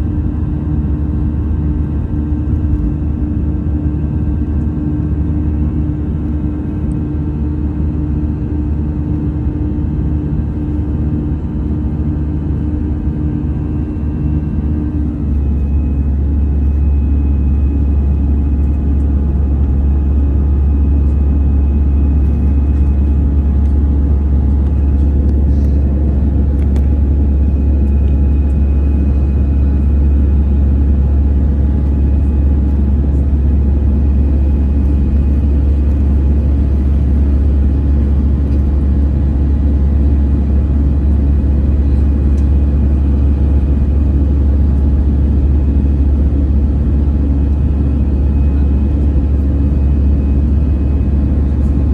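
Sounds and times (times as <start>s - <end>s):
airliner cabin engine rumble: 0.0s - 51.9s.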